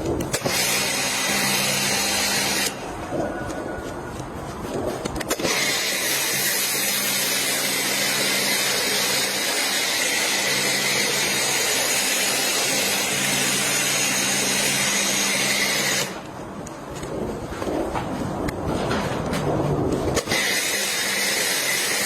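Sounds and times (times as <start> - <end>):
pump motor hum: 0.0 - 3.2.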